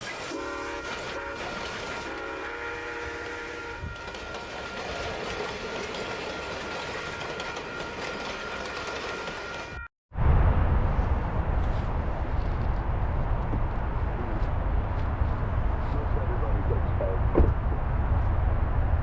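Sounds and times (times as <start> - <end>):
train horn blasts: 0.0 - 5.0, 6.2 - 9.9
train wheels on rails: 0.0 - 9.9.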